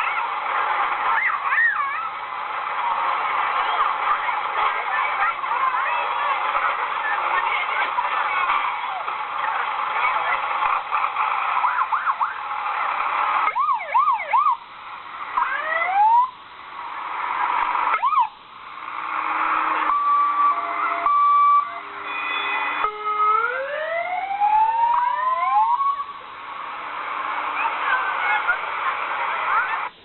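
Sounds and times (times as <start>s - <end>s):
fire engine sirens wailing: 0.0s - 30.0s.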